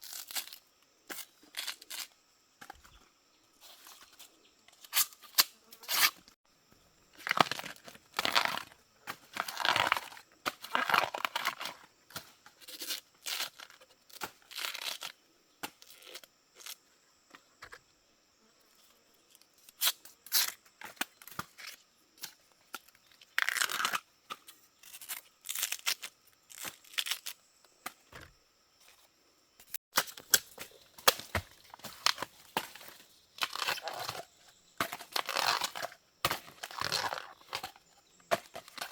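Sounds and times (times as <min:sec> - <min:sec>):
tearing crackling noises: 0:33.4 - 0:34.3, 0:34.9 - 0:37.8.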